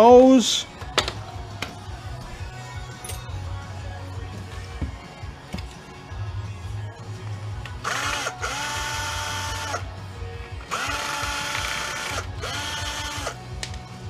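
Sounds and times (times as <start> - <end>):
power drill motor bursts: 7.8 - 9.8, 10.6 - 13.4.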